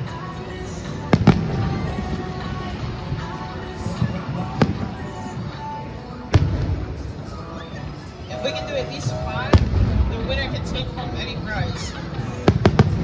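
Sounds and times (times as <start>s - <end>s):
background music: 0.0s - 13.0s
fireworks bangs: 1.1s - 3.3s, 4.0s - 5.3s, 6.3s - 7.6s, 9.5s - 13.0s
low echoing rumble: 9.0s - 13.0s.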